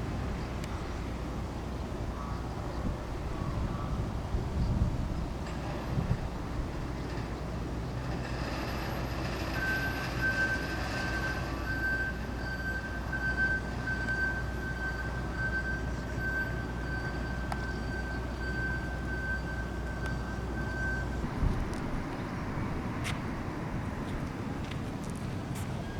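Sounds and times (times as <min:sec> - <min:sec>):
heavy vehicle engine running: 0:05.3 - 0:25.9.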